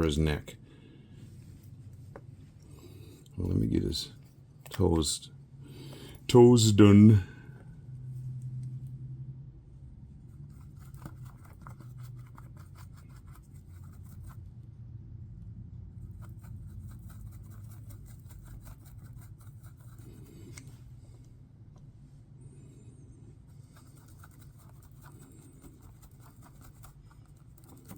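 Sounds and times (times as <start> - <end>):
low steady hum: 0.0 - 27.9
applicator ticking and scratching: 10.3 - 14.5, 16.0 - 20.7, 23.5 - 27.9.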